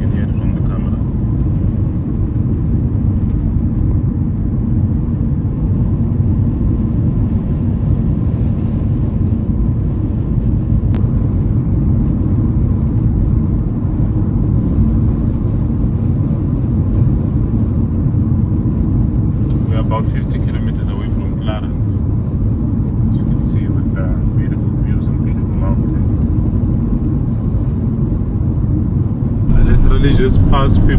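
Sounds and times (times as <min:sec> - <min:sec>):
car road noise: 0:00.0 - 0:25.0, 0:25.9 - 0:30.9
wind on microphone: 0:25.9 - 0:30.9.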